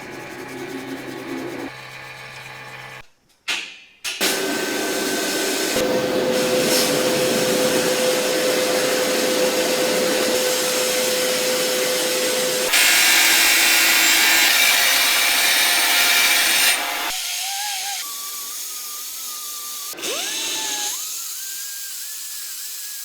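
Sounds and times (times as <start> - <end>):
power tool abrading: 4.2 - 22.3
hissy scraping: 6.2 - 11.2.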